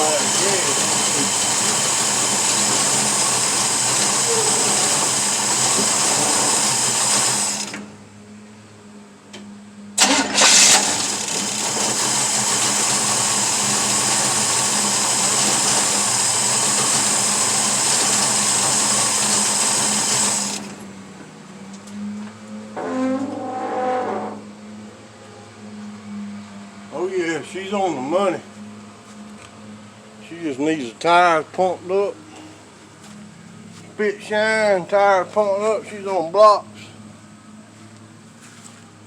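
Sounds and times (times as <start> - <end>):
loud car engine running: 0.0 - 7.9, 10.0 - 21.2.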